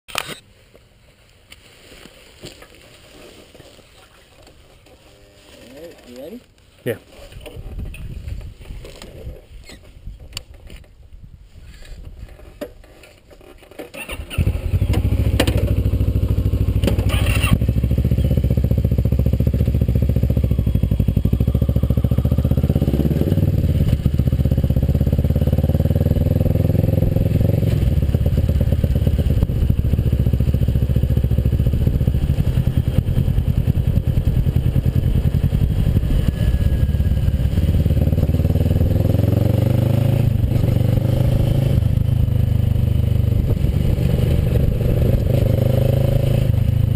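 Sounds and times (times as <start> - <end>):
motorcycle engine running: 14.0 - 46.9.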